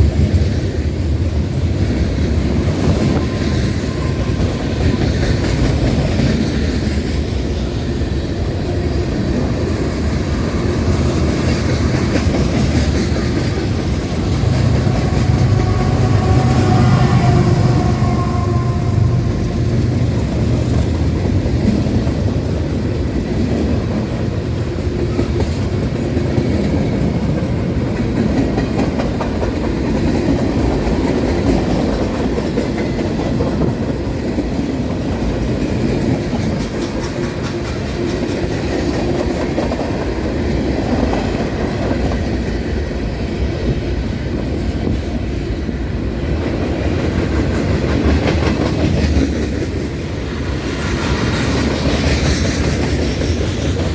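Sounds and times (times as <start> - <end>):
railroad cars rumbling past: 0.0 - 53.9
wheels clacking over rail joints: 8.6 - 42.6.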